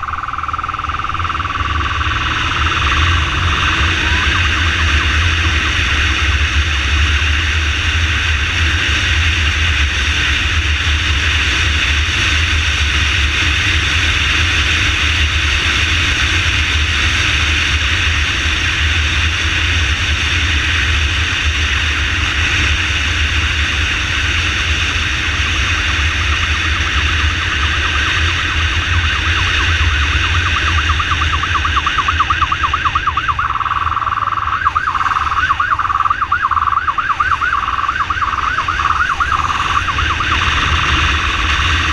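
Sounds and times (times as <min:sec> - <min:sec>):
siren warbling: 0:00.0 - 0:06.5, 0:23.9 - 0:41.9
motorcycle engine: 0:00.0 - 0:41.9
wind rush on microphone: 0:00.0 - 0:41.9.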